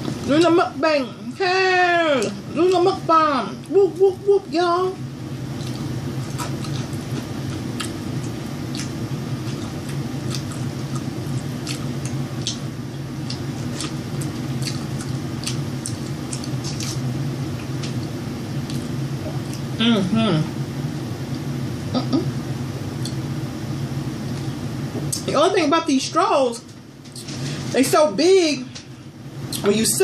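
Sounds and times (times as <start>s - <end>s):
steady low hum: 0.0s - 30.0s
person chewing: 5.4s - 19.8s.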